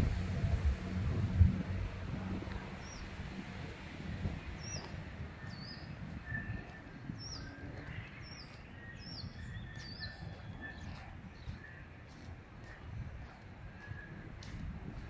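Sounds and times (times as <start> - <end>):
low background rumble: 0.0 - 15.0
small birds chirping: 2.4 - 15.0.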